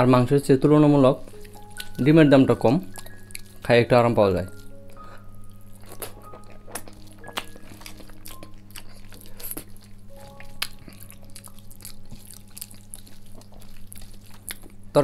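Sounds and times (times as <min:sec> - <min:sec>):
steady low hum: 0:00.0 - 0:15.0
person chewing with mouth clicks: 0:01.3 - 0:02.0, 0:02.8 - 0:03.6, 0:04.5 - 0:14.9.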